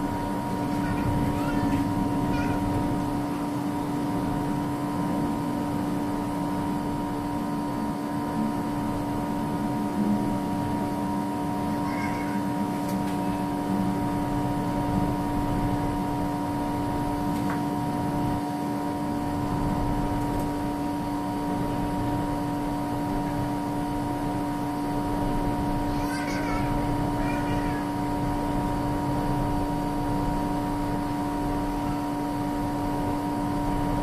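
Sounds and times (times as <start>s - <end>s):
mechanical hum: 0.0s - 34.0s.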